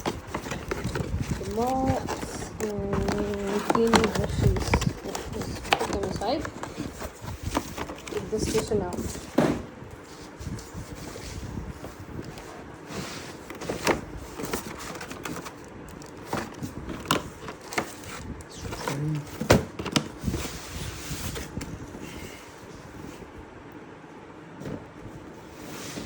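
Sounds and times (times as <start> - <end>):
cardboard and plastic rustling: 0.0 - 23.4, 24.5 - 26.0.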